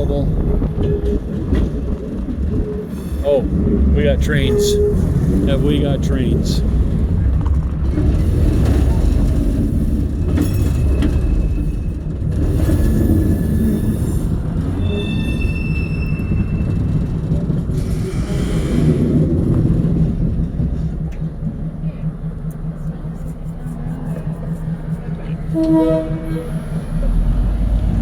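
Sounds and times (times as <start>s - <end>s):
train wheels rumbling on track: 0.0s - 28.0s
high wheel squeals: 13.3s - 17.2s, 25.4s - 27.0s.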